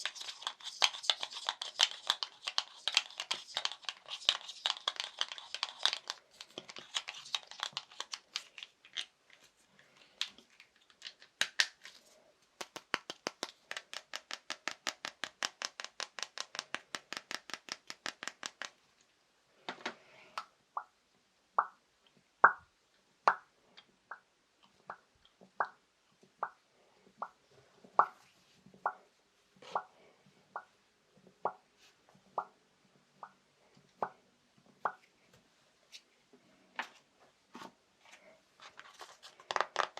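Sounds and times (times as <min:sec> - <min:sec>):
crinkle: 0:00.0 - 0:13.7, 0:38.1 - 0:39.9.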